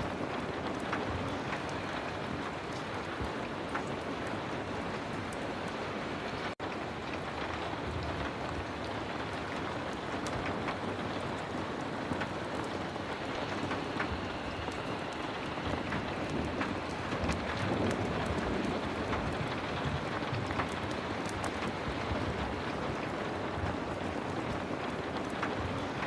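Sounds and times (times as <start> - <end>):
heavy rain falling: 0.0 - 26.0
small ticks and pops: 7.1 - 26.0.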